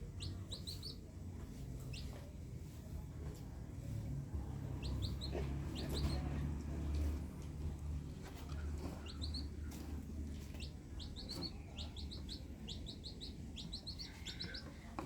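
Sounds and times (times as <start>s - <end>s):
birds chirping: 0.0s - 2.2s, 4.4s - 7.2s, 8.2s - 15.0s.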